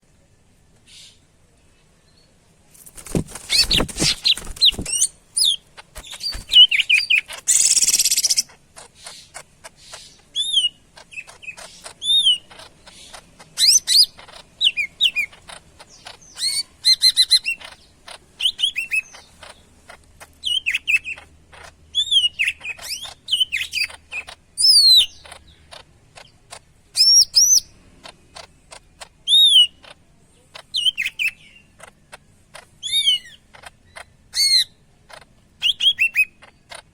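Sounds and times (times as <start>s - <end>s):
bird singing whistled notes: 4.6s - 8.5s.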